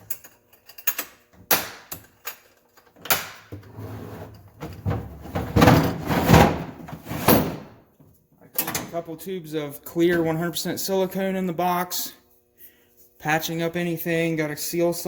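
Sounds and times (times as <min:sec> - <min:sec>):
scraping and rustling: 0:03.7 - 0:07.7
tools knocking and clunking: 0:04.6 - 0:07.7.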